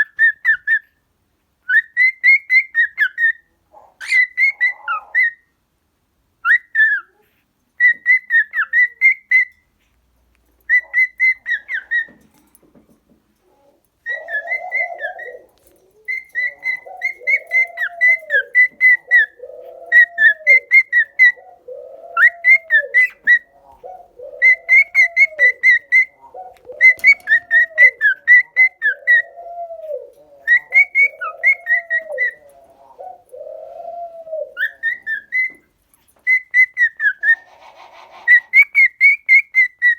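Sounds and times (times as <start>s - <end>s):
cockatiels whistling: 7.8s - 9.6s, 10.7s - 12.2s, 14.0s - 21.4s, 22.2s - 39.9s
low cooing call: 13.4s - 35.6s, 36.3s - 39.4s.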